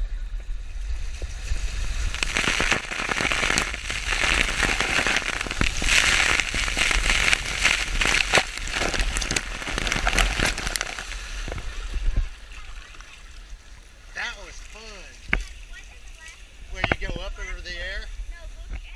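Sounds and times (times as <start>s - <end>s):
water rushing and splashing: 0.8s - 15.8s.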